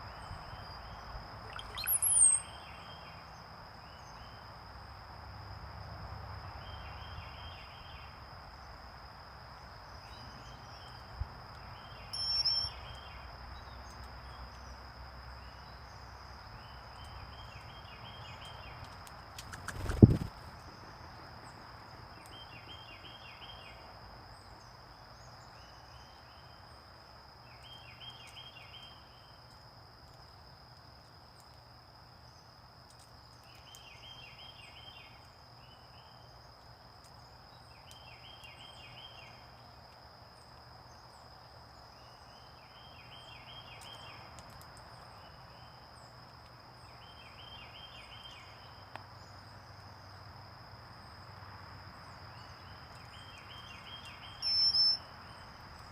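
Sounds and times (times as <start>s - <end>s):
songbird singing: 0.0s - 4.8s, 6.5s - 8.8s, 9.4s - 55.9s
steady high-pitched tone: 1.5s - 2.5s, 12.2s - 12.8s.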